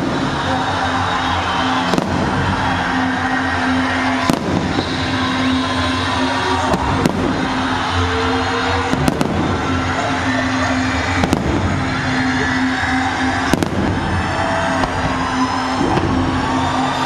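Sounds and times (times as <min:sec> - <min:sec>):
steady background din: 0:00.0 - 0:17.0.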